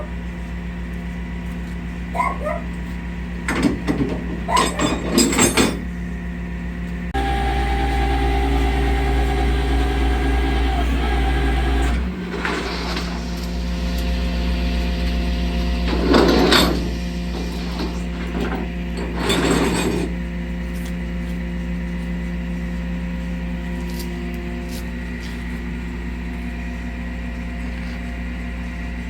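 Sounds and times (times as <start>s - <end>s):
truck engine idling: 5.9s - 19.1s.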